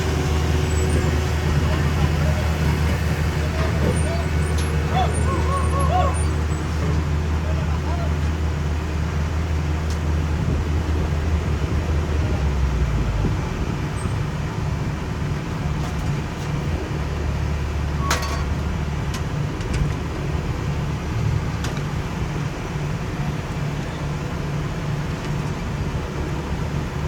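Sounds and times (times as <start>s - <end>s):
heavy equipment engines droning: 0.0s - 27.0s
sharp metallic clank: 18.0s - 18.6s.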